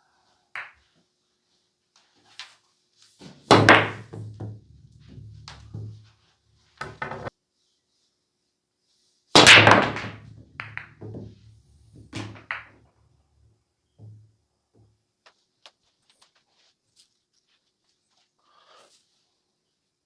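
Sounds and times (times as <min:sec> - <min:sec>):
cue striking ball: 0:03.5 - 0:06.0, 0:06.8 - 0:07.3, 0:09.4 - 0:11.4, 0:12.0 - 0:12.7
pool balls clacking: 0:03.5 - 0:06.1, 0:06.8 - 0:07.3, 0:09.4 - 0:12.7.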